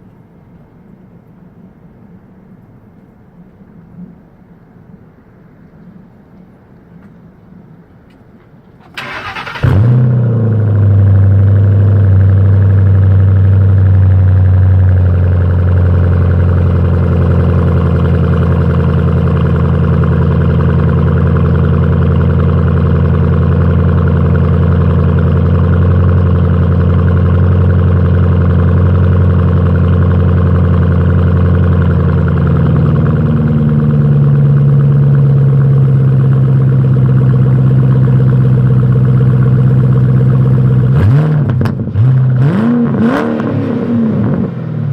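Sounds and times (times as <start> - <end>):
car engine idling: 7.1 - 42.6.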